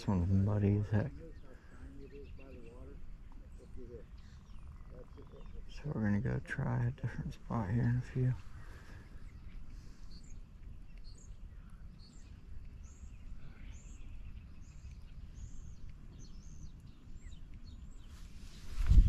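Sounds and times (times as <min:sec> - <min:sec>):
bird chirping: 0:00.0 - 0:19.0.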